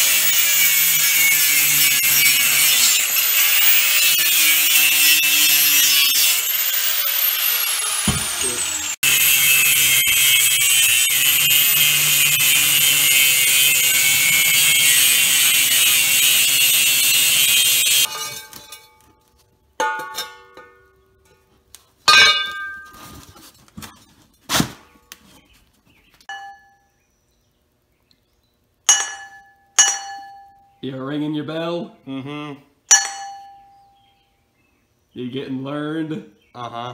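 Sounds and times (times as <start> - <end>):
power tool cutting metal: 0.0 - 18.2
strikes on ringing steel cylinder: 28.9 - 30.6, 32.9 - 33.8.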